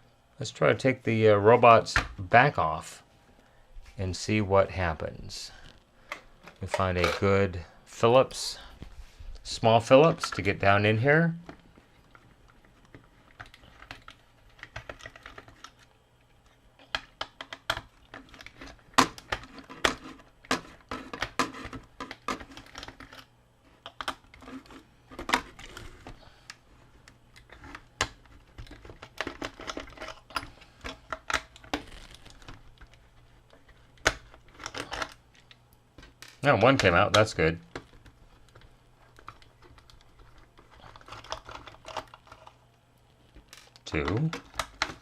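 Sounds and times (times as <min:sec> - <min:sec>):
plastic toy being handled: 0:27.0 - 0:42.6.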